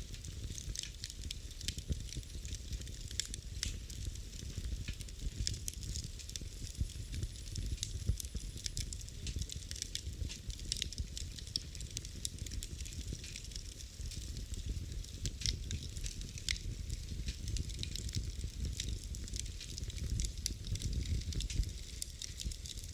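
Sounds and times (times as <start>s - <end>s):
low rumble of flame: 0.0s - 22.9s
wood fire crackling: 0.0s - 22.9s.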